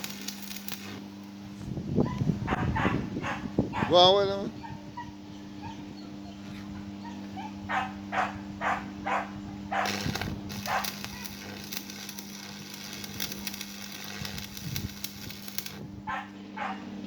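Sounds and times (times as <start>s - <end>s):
welding arc crackling: 0.0s - 1.3s, 9.8s - 15.9s
electrical hum: 0.0s - 17.0s
dog barking: 2.5s - 4.0s, 7.0s - 10.0s, 10.7s - 11.0s, 16.1s - 16.9s.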